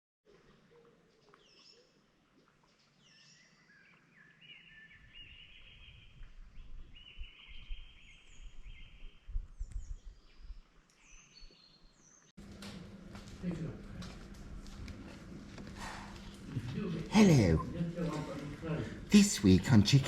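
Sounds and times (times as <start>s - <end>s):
wild birds singing: 0.3s - 12.3s
wind buffeting microphone: 5.0s - 10.7s.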